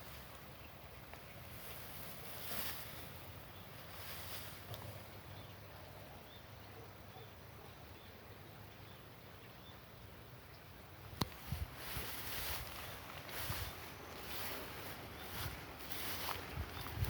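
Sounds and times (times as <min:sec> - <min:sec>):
low hiss: 0:00.0 - 0:17.0
small bird chirping: 0:12.4 - 0:17.0.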